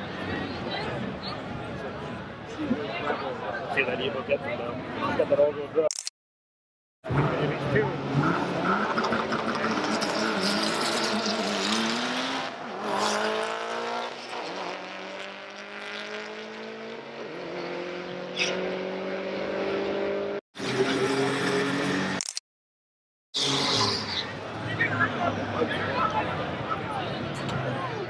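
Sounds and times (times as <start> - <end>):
racing cars accelerating: 7.1 - 22.2, 23.4 - 27.7.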